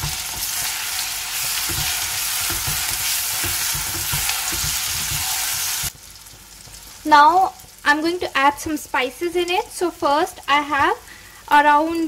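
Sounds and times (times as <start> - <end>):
spatula scraping a pan: 0.0 - 5.9
vegetables sizzling in hot oil: 0.0 - 12.0.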